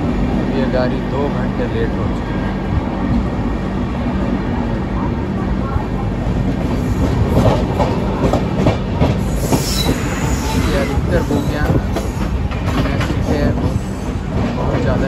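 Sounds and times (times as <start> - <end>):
train rumble on board: 0.0 - 15.0
wheels clacking over rail joints: 6.4 - 15.0.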